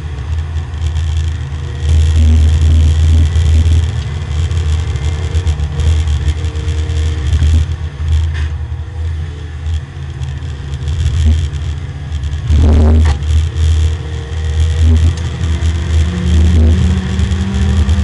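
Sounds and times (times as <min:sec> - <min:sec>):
race car engine: 0:00.0 - 0:18.0.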